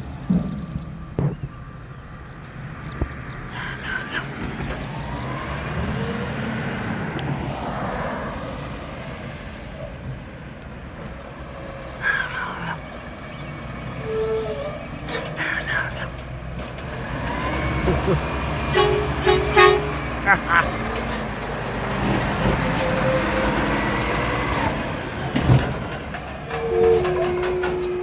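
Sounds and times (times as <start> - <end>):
garbage truck diesel engine: 0.0 - 28.0.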